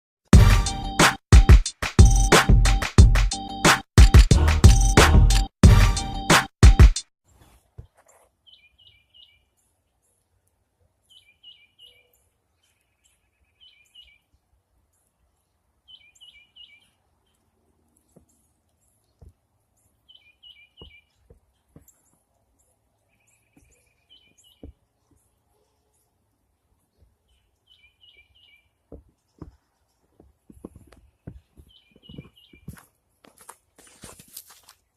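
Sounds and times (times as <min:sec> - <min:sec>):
small songbird calling: 0:11.1 - 0:14.3, 0:15.8 - 0:17.5, 0:20.0 - 0:22.1, 0:26.9 - 0:29.9.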